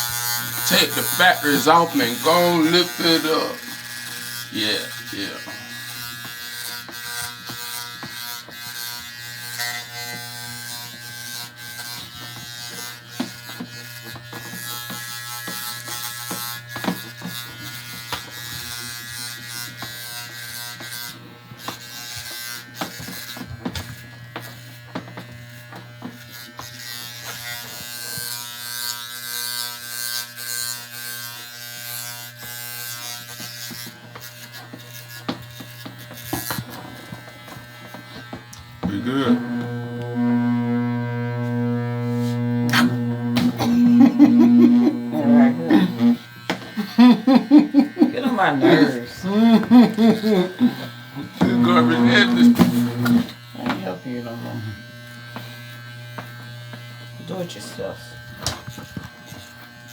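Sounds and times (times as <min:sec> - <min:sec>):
electric hair clipper buzzing: 0:00.0 - 0:59.9
scratchy clicks of cutting blades: 0:00.0 - 0:59.9.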